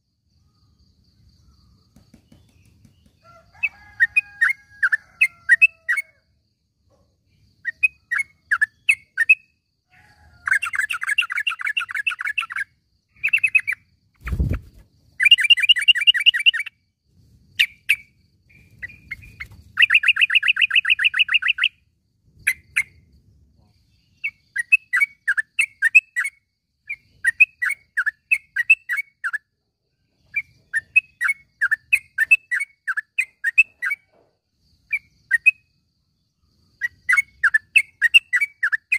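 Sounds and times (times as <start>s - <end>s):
bird trills: 10.5s - 14.5s, 15.2s - 16.8s, 17.6s - 21.8s, 36.8s - 38.9s.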